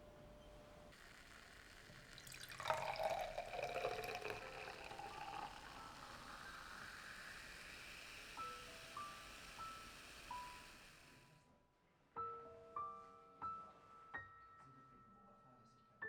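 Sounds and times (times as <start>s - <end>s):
water running from a tap: 1.0s - 11.2s.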